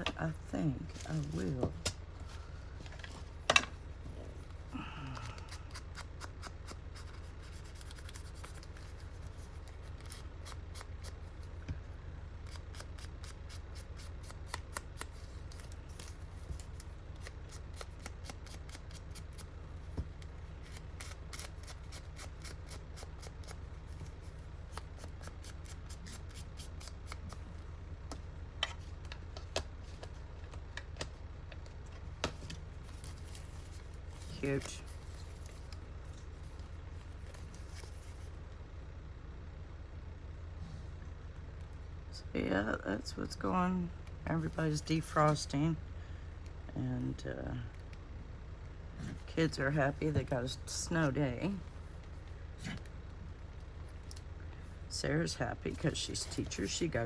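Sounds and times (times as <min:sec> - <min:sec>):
steady low hum: 0:00.0 - 0:57.0
scissors cutting paper: 0:05.1 - 0:11.5, 0:12.4 - 0:19.5, 0:20.6 - 0:27.4.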